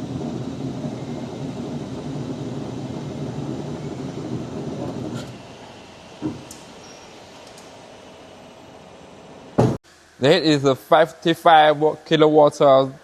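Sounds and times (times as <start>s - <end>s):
heavy machinery rumbling: 0.0s - 9.8s.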